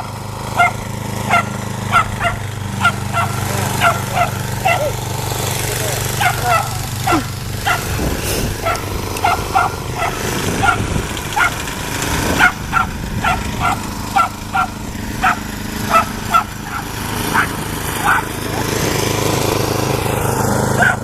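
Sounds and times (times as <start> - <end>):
dog barking: 0.6 - 5.0, 5.8 - 8.0, 8.6 - 11.6, 12.3 - 18.8, 20.8 - 21.0.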